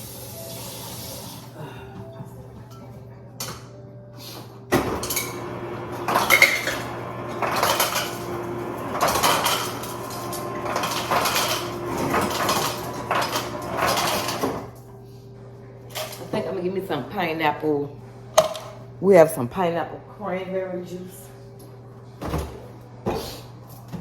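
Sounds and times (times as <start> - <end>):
dishes and utensils clattering: 4.7 - 14.8, 15.9 - 16.4.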